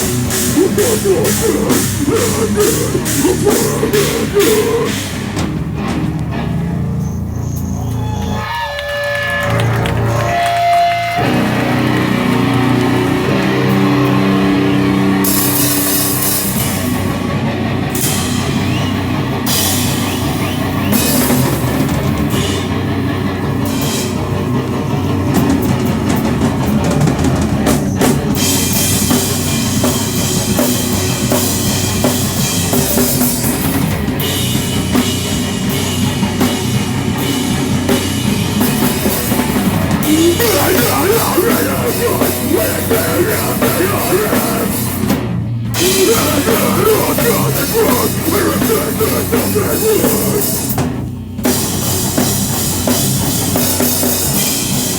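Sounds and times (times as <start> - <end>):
distorted electric guitar chords: 0.0 - 6.8, 39.0 - 45.2, 45.8 - 50.9
heavy rock band playing: 0.0 - 7.0, 10.6 - 54.9.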